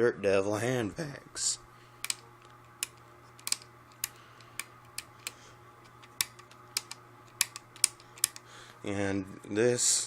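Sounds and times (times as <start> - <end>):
sharp plastic switch clicks: 6.1 - 8.4.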